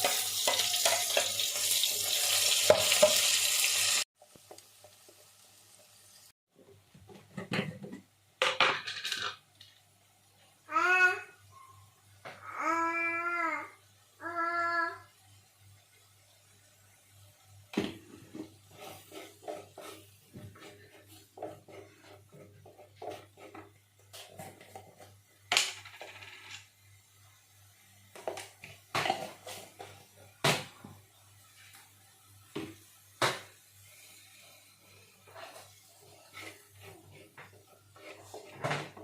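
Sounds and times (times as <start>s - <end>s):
dishes clinking and knocking: 0.0s - 1.6s, 7.1s - 9.4s.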